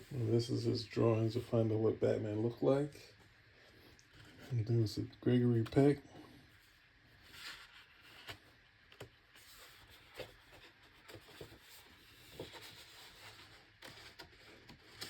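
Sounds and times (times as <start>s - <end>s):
soft paper rustles: 3.0s - 15.0s
book pages turning: 6.6s - 15.0s.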